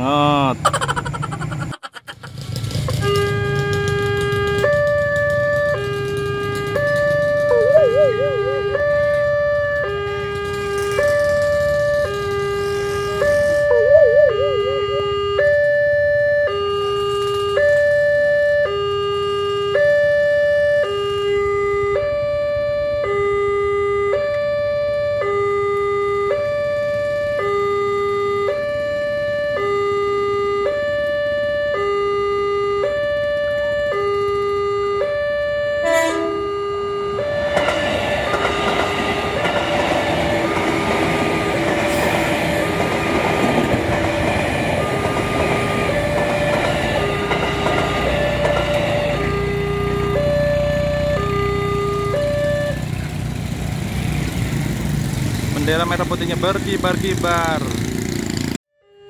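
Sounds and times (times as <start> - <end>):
electric train running: 2.2 - 18.3, 36.1 - 58.5
level crossing two-tone alarm: 3.0 - 53.0.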